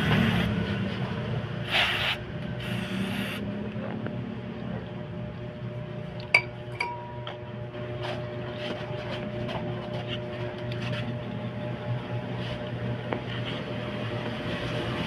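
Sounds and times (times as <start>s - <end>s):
steady low hum: 0.0s - 15.0s
sharp metallic clink: 6.4s - 7.3s.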